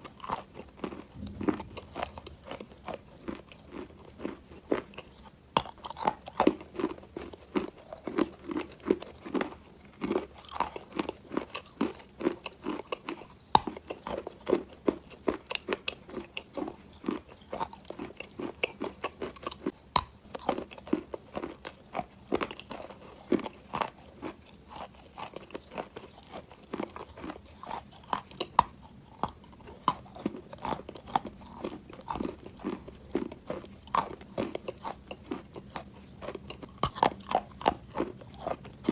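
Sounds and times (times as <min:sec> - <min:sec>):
gritty crunching and chewing: 0:00.0 - 0:38.9.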